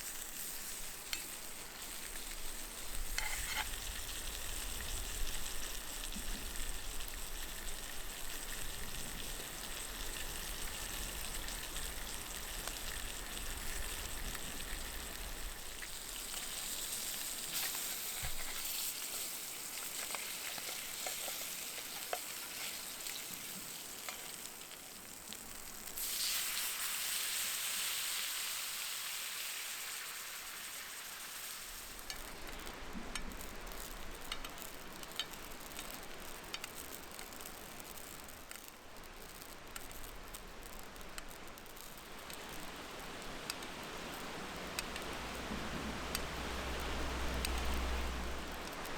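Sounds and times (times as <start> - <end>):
food sizzling in oil: 0.0 - 48.9
small clicks and pops: 32.0 - 48.9.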